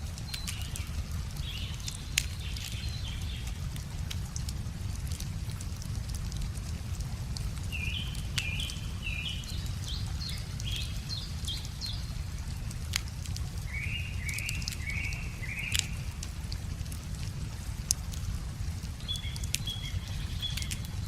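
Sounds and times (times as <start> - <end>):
river rumbling: 0.0 - 21.0
wood fire crackling: 0.0 - 21.0
songbird singing: 0.2 - 3.6, 7.7 - 12.4, 13.6 - 16.2, 18.9 - 21.0.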